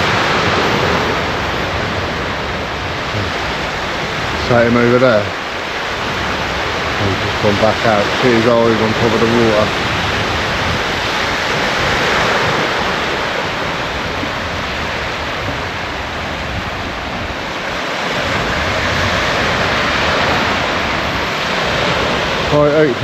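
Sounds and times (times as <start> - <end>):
surf breaking on shore: 0.0 - 23.0.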